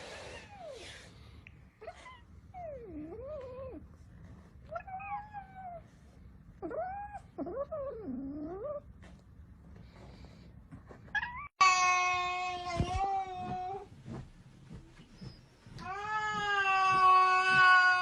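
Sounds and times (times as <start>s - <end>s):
cat meowing: 15.8s - 18.0s.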